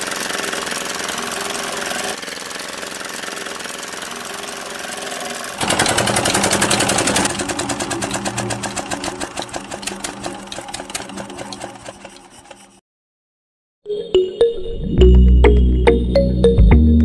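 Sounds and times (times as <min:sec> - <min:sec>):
model engine humming: 0:00.0 - 0:12.6
cutter clattering: 0:05.6 - 0:12.8.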